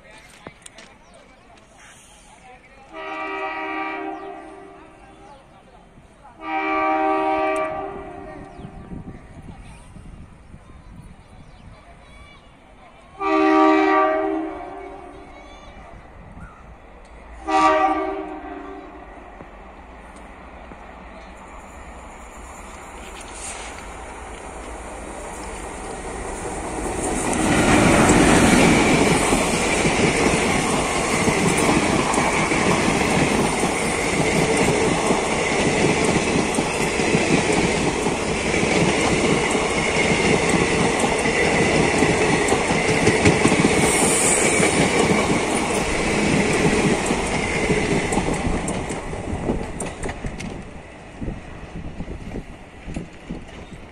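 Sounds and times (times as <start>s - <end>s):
train passing close by: 0.0s - 53.9s
wheels clacking over rail joints: 22.7s - 50.9s.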